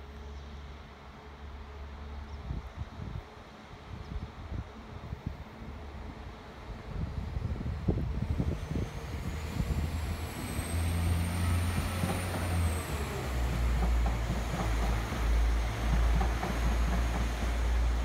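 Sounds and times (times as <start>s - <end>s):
diesel train engine rumbling: 0.0s - 18.0s.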